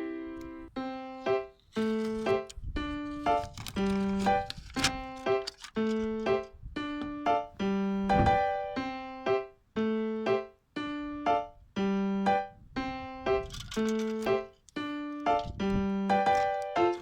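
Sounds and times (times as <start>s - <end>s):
piano-like keyboard notes: 0.0s - 17.0s.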